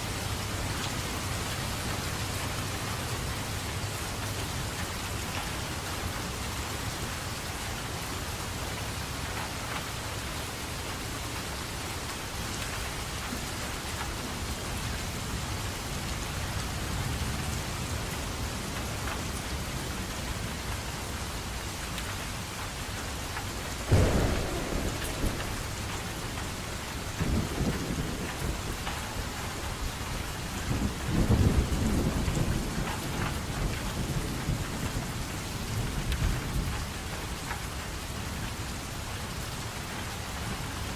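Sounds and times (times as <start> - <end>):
steady rainfall: 0.0 - 40.9
thunder rumbling: 23.8 - 36.8
thunder crack: 23.9 - 29.0.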